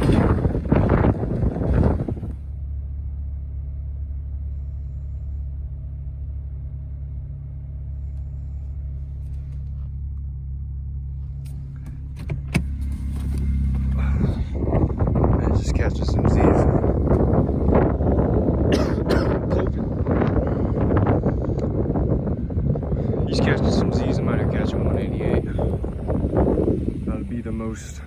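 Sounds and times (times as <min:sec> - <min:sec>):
engine idling hum: 0:00.0 - 0:28.0.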